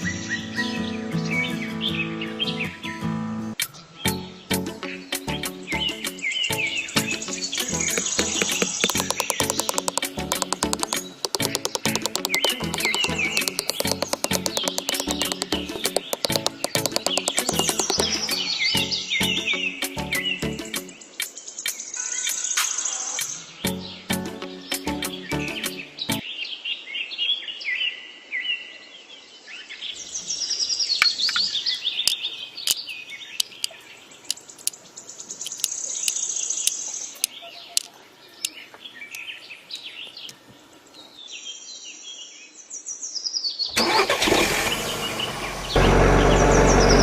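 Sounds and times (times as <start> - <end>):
birds chirping and trilling: 3.8 - 43.8
sharp clicks: 7.7 - 18.4, 35.4 - 38.6.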